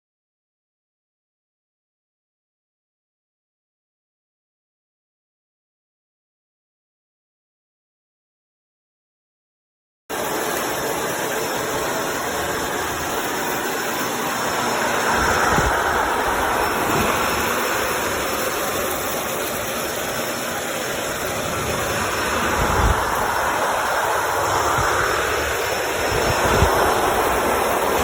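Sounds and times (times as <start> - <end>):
vacuum cleaner running: 10.1 - 28.0.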